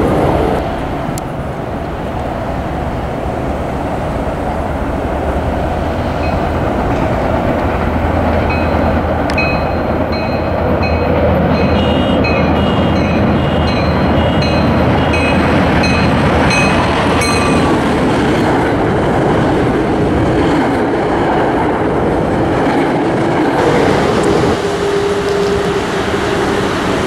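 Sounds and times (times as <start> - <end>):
train wheels on rails: 0.0 - 27.0
train bell ringing: 6.2 - 6.6, 8.4 - 17.8.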